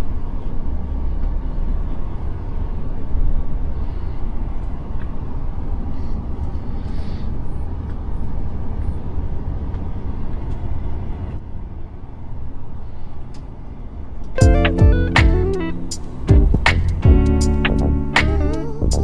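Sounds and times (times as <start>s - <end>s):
truck engine rumbling: 14.4s - 19.0s.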